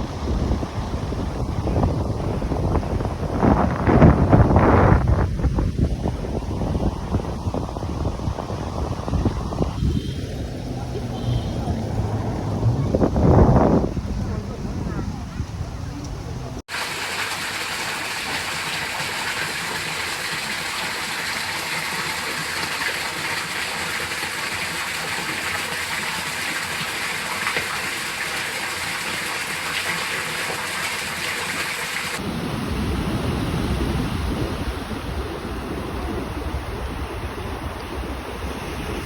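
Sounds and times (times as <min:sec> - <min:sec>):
wind buffeting microphone: 0:00.0 - 0:16.6, 0:32.2 - 0:39.0
rushing water hiss: 0:07.6 - 0:12.2, 0:16.7 - 0:39.0.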